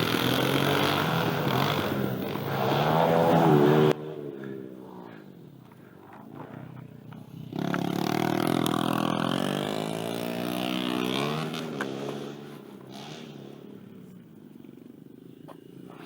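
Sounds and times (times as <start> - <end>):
pit bike engine revving: 0.0 - 4.1, 6.3 - 13.7.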